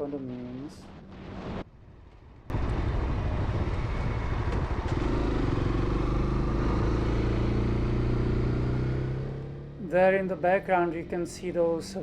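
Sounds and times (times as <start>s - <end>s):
road and wind noise: 0.0s - 12.0s
motorcycle engine running: 3.5s - 11.9s.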